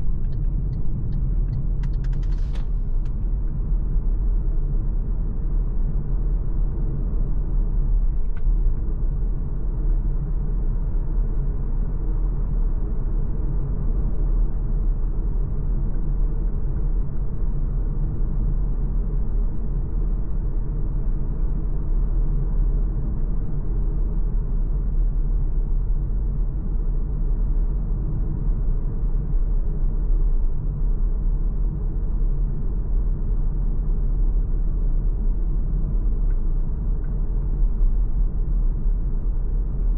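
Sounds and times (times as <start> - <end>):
car road and drive rumble: 0.0 - 14.1.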